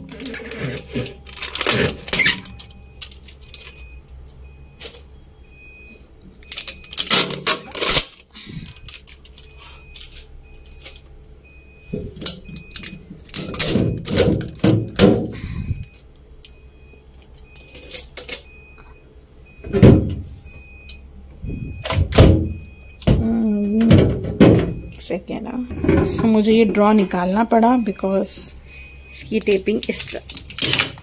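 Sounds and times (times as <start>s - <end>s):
plastic clattering and rustling: 0.0s - 3.9s, 6.5s - 11.0s, 11.9s - 15.4s, 29.4s - 31.0s
fridge alarm beeping: 0.0s - 31.0s.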